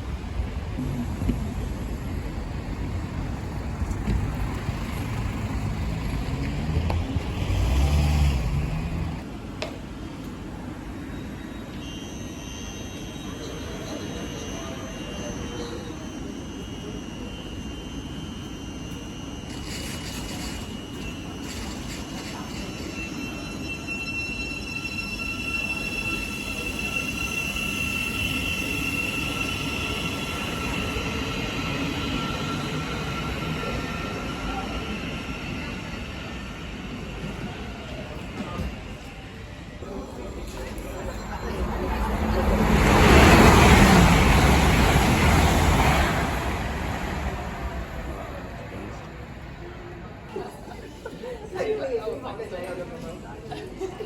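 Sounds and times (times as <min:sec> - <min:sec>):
train rumbling past: 0:00.0 - 0:11.3, 0:12.6 - 0:51.5
diesel bus engine passing: 0:03.5 - 0:09.3
high-pitched squeal: 0:11.8 - 0:39.0.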